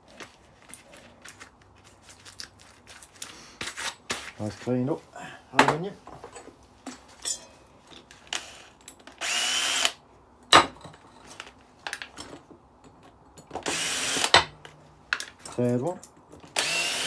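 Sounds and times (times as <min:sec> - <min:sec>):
power drill undoing screws: 0:09.2 - 0:10.0, 0:13.6 - 0:14.5, 0:16.5 - 0:17.0.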